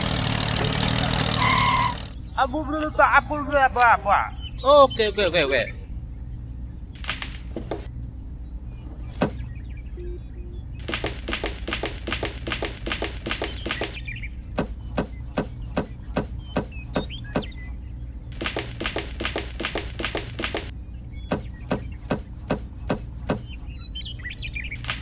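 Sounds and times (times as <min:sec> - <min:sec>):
rapid light taps: 0:14.6 - 0:17.6, 0:21.3 - 0:23.6.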